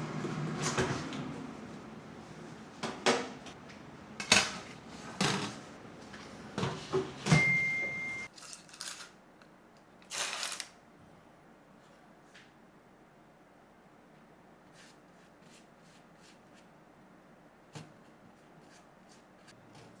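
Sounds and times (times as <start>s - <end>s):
appliance hum: 0.0s - 20.0s
kitchen knocks and clatters: 4.2s - 5.7s.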